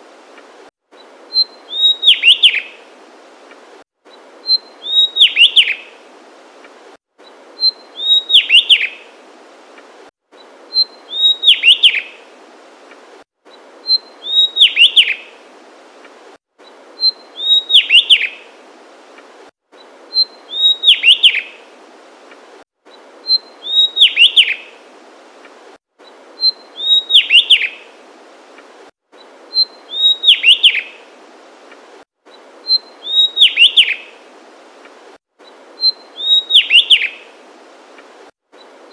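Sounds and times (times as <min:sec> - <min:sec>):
bird singing: 0:01.3 - 0:02.8, 0:04.4 - 0:05.9, 0:07.6 - 0:09.0, 0:10.7 - 0:12.2, 0:13.8 - 0:15.3, 0:17.0 - 0:18.4, 0:20.1 - 0:21.6, 0:23.2 - 0:24.7, 0:26.4 - 0:27.8, 0:29.5 - 0:31.0, 0:32.6 - 0:34.1, 0:35.4 - 0:37.3.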